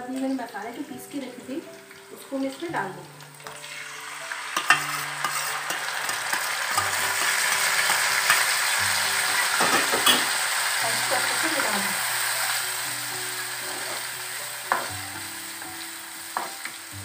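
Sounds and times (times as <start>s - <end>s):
paste sizzling in hot oil: 0.7s - 17.0s
steel spoon clinking on plate: 4.6s - 6.2s.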